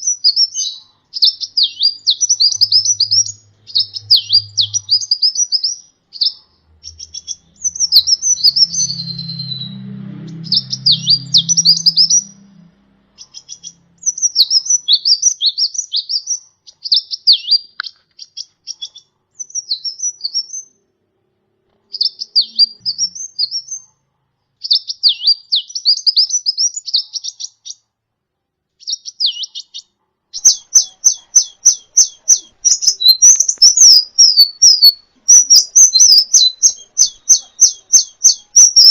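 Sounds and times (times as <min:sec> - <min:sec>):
faint low hum: 0:00.0 - 0:15.7
bird twittering song: 0:00.0 - 0:20.8, 0:21.9 - 0:24.0, 0:24.6 - 0:27.9, 0:28.8 - 0:38.9.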